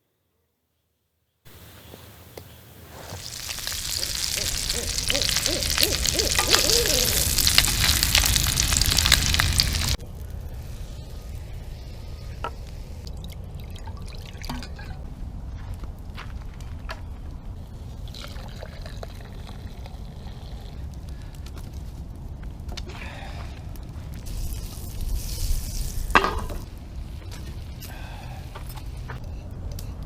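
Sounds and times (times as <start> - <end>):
campfire crackling: 1.5 - 10.0.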